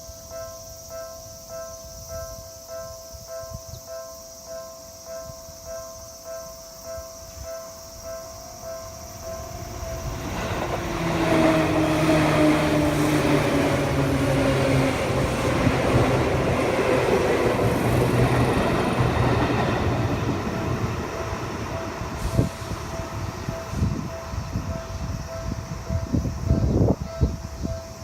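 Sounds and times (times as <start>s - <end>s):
crossing warning bell ringing: 0.0s - 28.0s
train wheels rumbling on rail: 6.9s - 28.0s.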